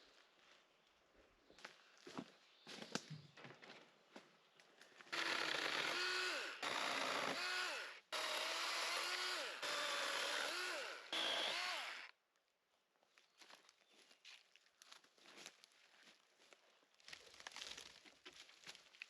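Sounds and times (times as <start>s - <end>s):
motorised cutter cutting undergrowth: 5.1s - 12.1s.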